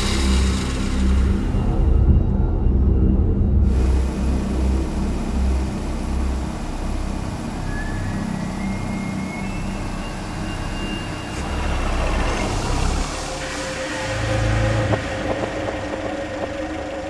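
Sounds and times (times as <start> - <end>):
car engine idling: 3.7 - 17.0.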